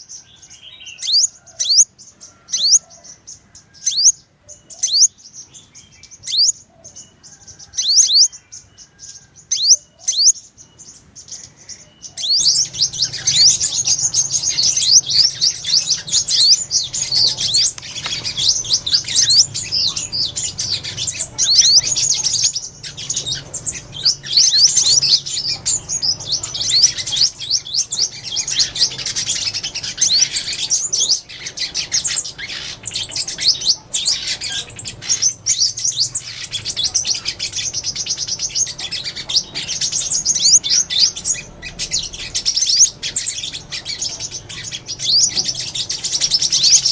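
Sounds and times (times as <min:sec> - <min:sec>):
sunbird chirps and twittering: 0:00.0 - 0:46.9.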